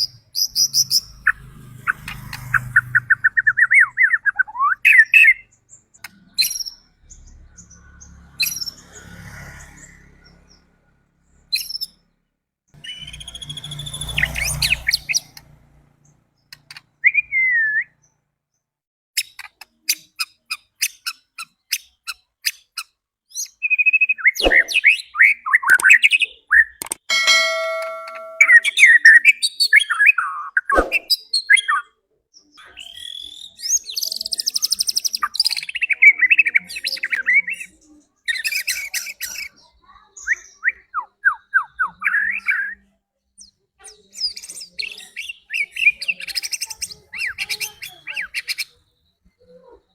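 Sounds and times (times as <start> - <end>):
bird singing whistled phrases: 3.6 - 5.5, 12.8 - 14.3, 17.0 - 18.0, 32.6 - 37.6.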